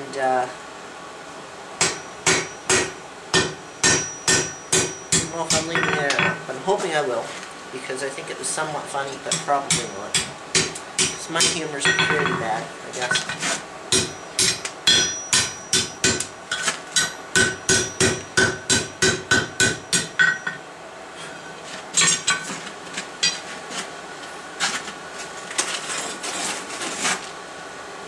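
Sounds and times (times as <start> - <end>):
hammer striking steel on anvil: 1.8 - 6.4, 9.3 - 12.5, 13.1 - 20.6, 23.2 - 23.4.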